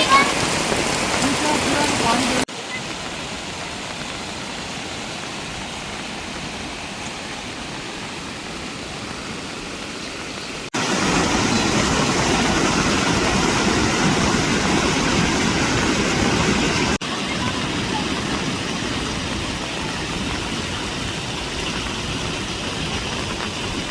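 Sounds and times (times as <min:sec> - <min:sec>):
rushing water: 0:00.0 - 0:23.9.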